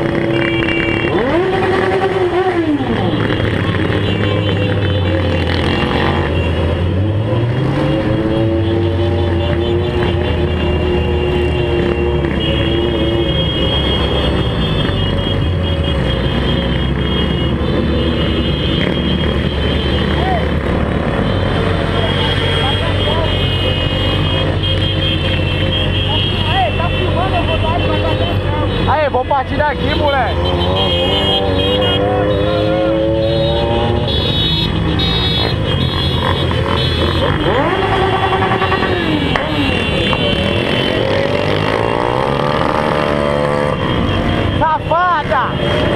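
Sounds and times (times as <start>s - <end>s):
motorcycle engine accelerating: 0.0s - 13.3s, 35.9s - 44.5s
motorcycle engines running: 0.0s - 45.9s.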